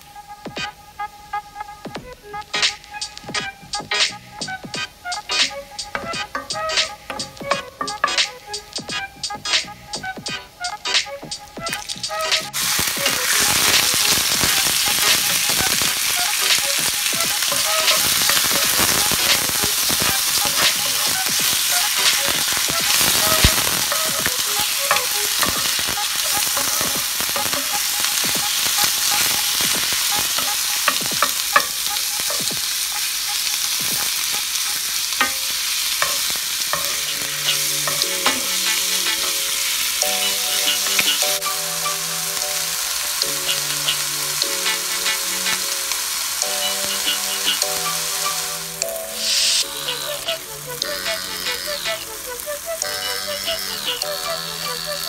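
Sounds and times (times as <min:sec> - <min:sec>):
chicken sizzling in hot oil: 0:02.4 - 0:55.0
wooden spatula tapping and scraping pan: 0:20.5 - 0:32.7, 0:35.2 - 0:39.4.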